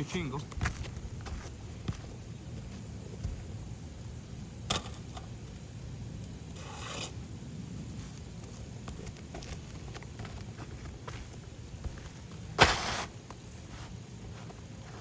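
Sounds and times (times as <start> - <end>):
short scrape: 12.6 - 13.2.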